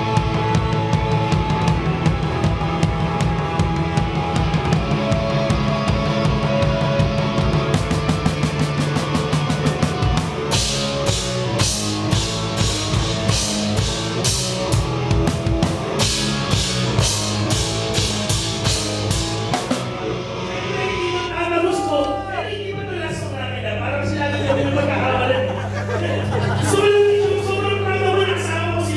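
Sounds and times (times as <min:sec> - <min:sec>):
live rock band: 0:00.0 - 0:22.2
crashing cymbals: 0:10.0 - 0:20.0.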